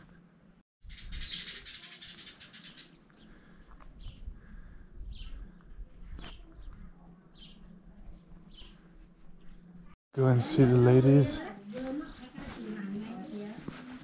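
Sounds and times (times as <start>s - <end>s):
rapid high bird twittering: 0.8s - 3.4s.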